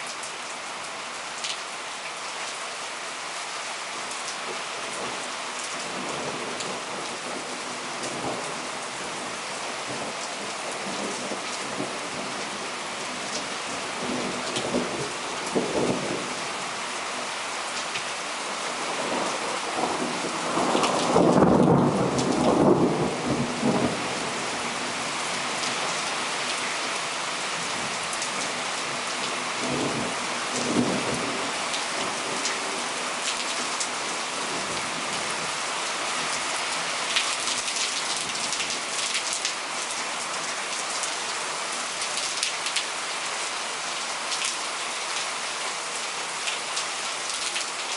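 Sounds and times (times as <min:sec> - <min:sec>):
heavy rain pouring: 0:00.0 - 0:47.9
thunder rumbling: 0:19.8 - 0:24.0.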